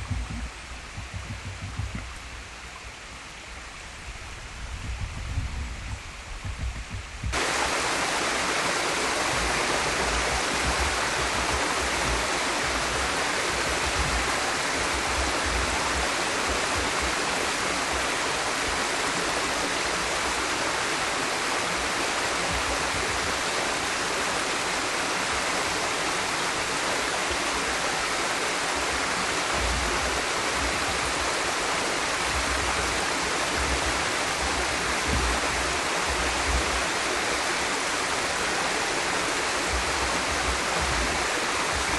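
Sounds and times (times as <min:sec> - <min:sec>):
waterfall rushing: 0:07.3 - 0:41.9.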